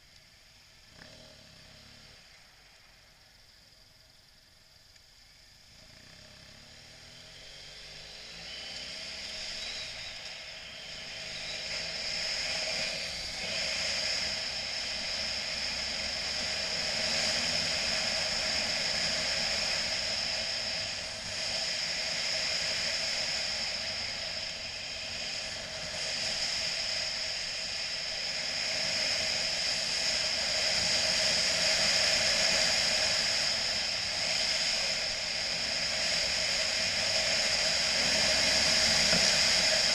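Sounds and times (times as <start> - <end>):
motorcycle engine: 5.6 - 39.9
rushing wind noise: 9.2 - 39.9.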